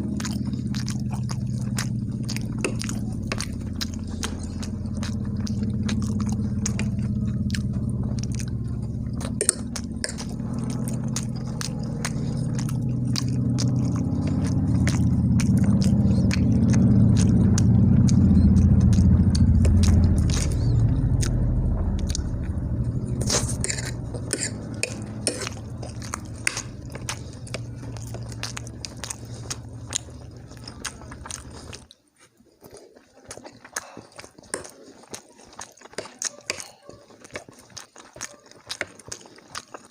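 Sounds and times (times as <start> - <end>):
steady low hum: 0.0 - 31.9
wet mouth clicks: 0.0 - 32.0, 32.6 - 39.9
person chewing food: 0.0 - 39.9.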